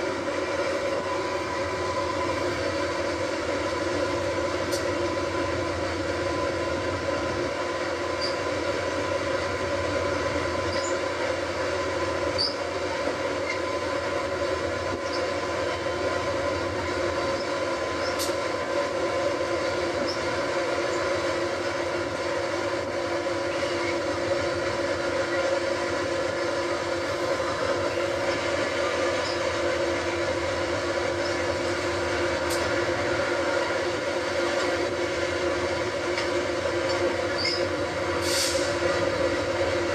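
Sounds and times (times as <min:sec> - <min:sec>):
train drone: 0:00.0 - 0:39.9
high ticks from rails: 0:17.3 - 0:18.4.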